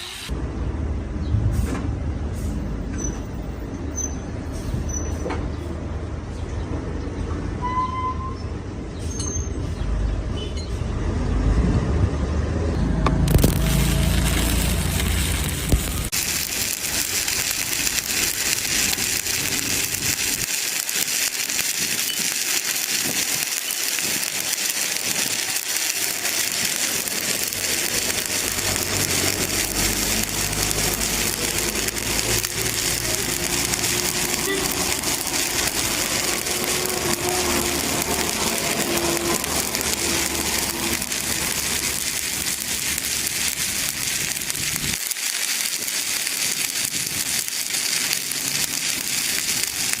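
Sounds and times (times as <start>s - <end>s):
welding arc crackling: 0.0s - 0.4s, 12.7s - 50.0s.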